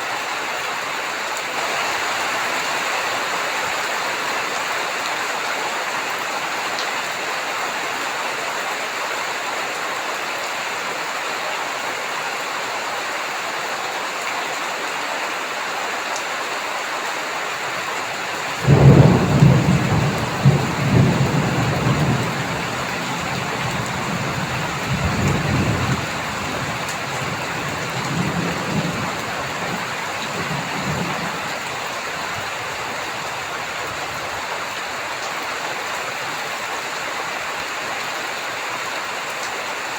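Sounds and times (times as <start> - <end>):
heavy rain falling: 0.0 - 39.9
thunder rumbling: 18.6 - 33.0.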